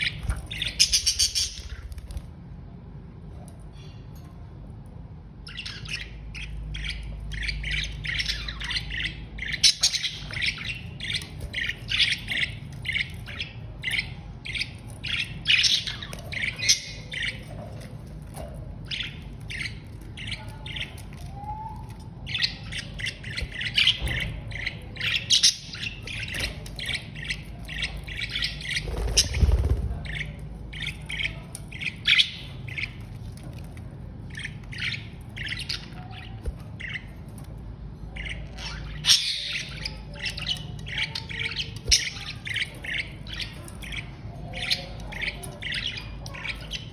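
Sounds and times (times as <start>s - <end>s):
budgerigars chattering: 0.0s - 2.0s.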